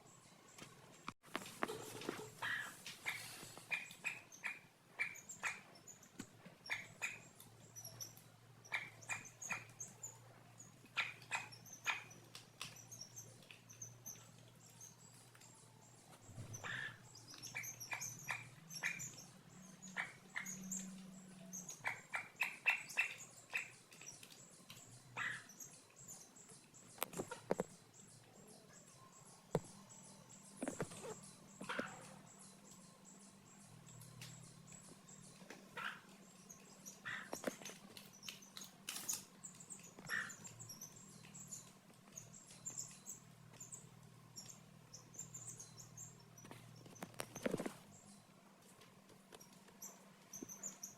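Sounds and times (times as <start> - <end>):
chickens clucking and peeping: 1.3 - 4.7.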